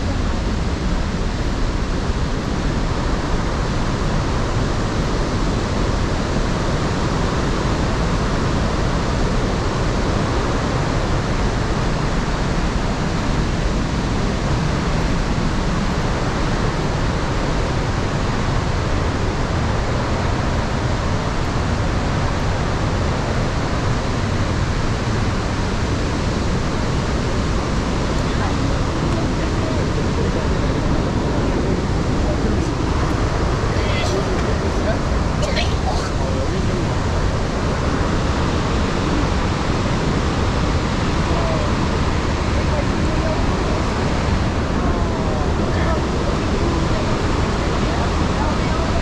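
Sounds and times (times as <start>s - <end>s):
waterfall roaring: 0.0s - 49.0s.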